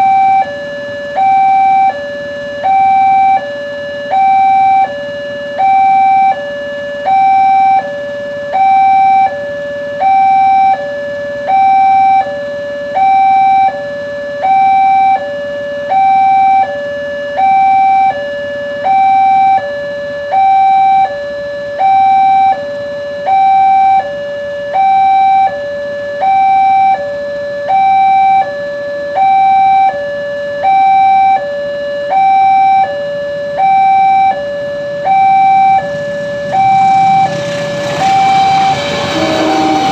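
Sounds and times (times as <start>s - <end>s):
level crossing two-tone alarm: 0.0s - 39.9s.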